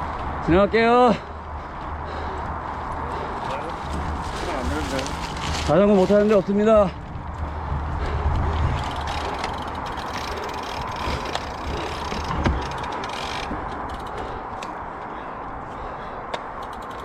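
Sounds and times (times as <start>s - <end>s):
bike tyres rolling on dirt: 0.0s - 17.0s
bike chain rattle: 3.2s - 14.4s, 16.5s - 17.0s.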